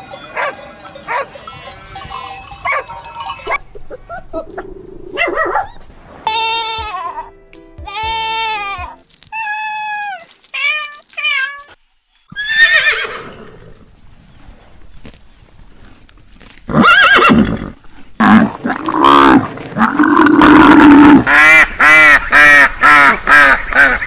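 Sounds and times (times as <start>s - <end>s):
horse whinnying: 12.3s - 13.8s, 16.7s - 21.2s.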